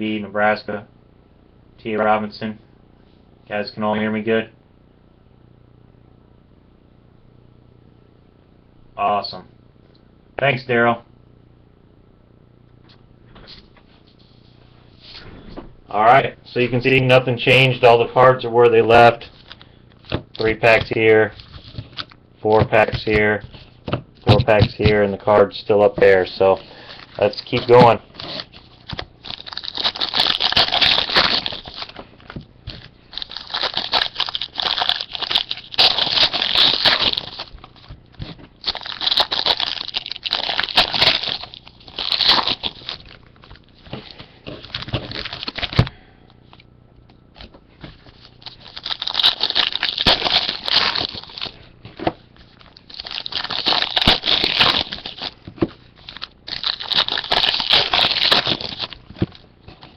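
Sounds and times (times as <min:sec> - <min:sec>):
plastic wrapping tearing and crinkling: 0:26.0 - 0:45.9, 0:47.9 - 0:59.9.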